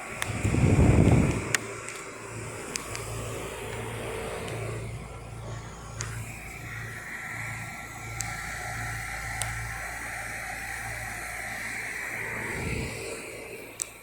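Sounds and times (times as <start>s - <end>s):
heat pump units humming: 0.0s - 14.0s
loud low rumble: 0.3s - 1.6s, 12.4s - 13.1s.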